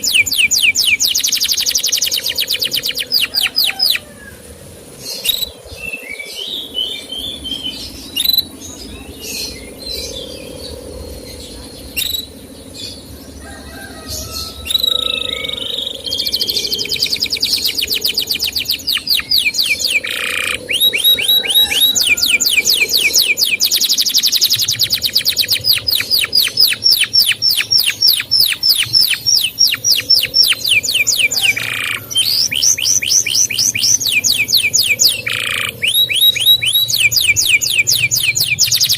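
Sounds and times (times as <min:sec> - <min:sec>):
fast trill of chirps: 0:00.0 - 0:04.0, 0:11.9 - 0:38.9
canary singing: 0:00.0 - 0:38.9.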